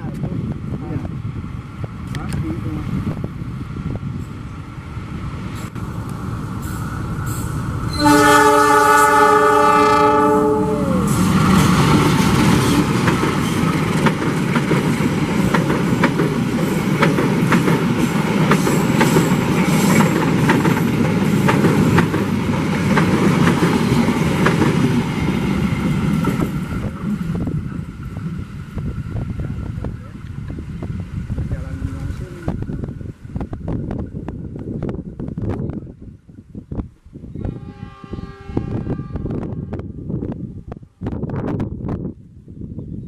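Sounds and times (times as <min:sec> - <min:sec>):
locomotive horn blast: 0:07.9 - 0:11.3, 0:37.4 - 0:39.9
train wheels clacking over rail joints: 0:11.3 - 0:26.7.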